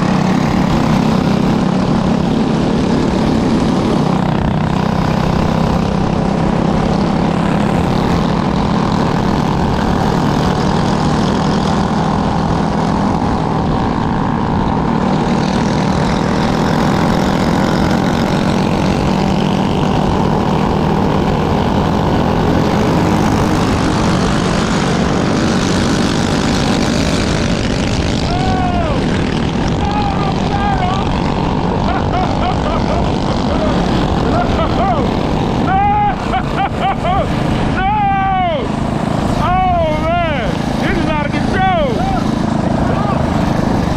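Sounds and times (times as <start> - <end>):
propeller aircraft engine running: 0.0 - 43.9.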